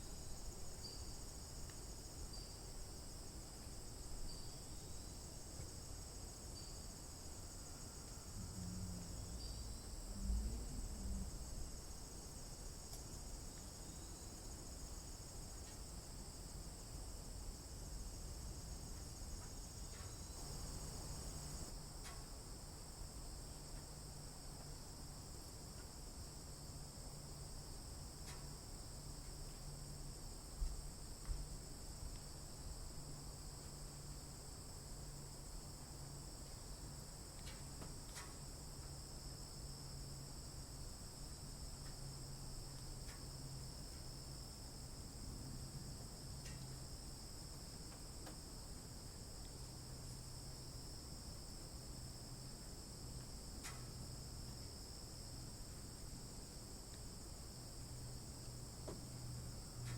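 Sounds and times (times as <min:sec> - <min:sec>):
low steady hum: 0:00.0 - 0:22.0
insects trilling: 0:00.2 - 0:17.0, 0:17.6 - 0:22.1.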